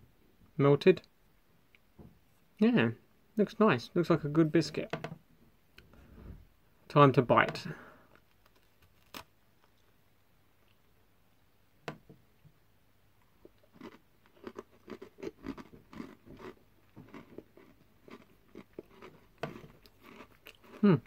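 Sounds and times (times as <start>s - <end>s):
crunchy chewing of biscuit: 13.2s - 21.0s.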